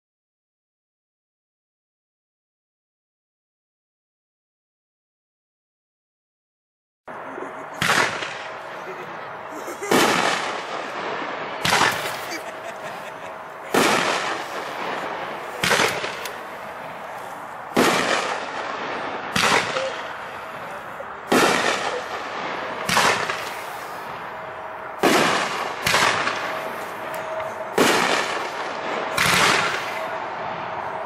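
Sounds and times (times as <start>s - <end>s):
aerial firework booms: 13.7s - 16.7s, 17.7s - 20.0s, 21.3s - 24.3s, 25.0s - 27.1s, 27.7s - 30.1s.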